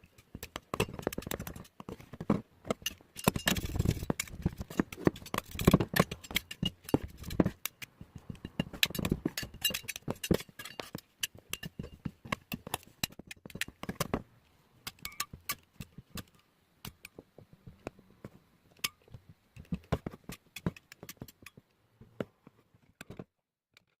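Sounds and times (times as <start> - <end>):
clicks of small hard objects: 0.0 - 14.2.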